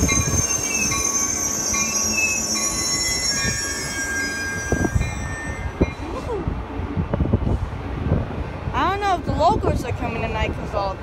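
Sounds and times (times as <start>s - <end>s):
steel wheels squealing: 0.0s - 6.2s
passenger train rumbling: 0.0s - 11.0s.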